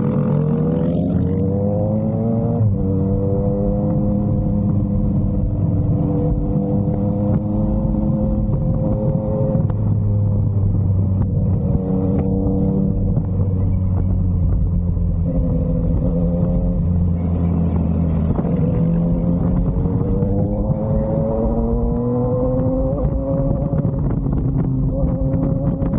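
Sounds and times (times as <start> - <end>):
motorcycle engine running: 0.0 - 1.5, 3.0 - 25.9.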